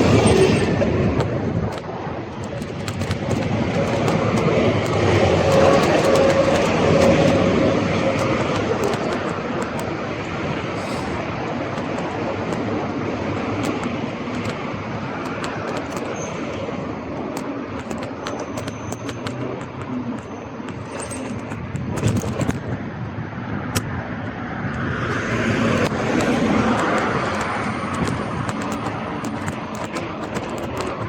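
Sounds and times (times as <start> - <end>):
bike clicks and rattles: 0.0 - 31.0
bike tyre and wind noise: 0.0 - 31.0
vehicle passing: 22.9 - 29.2.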